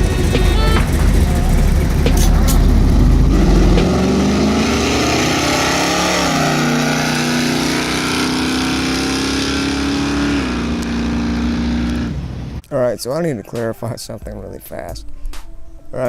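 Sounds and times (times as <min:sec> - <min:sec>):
car engine running under power: 0:00.0 - 0:12.6.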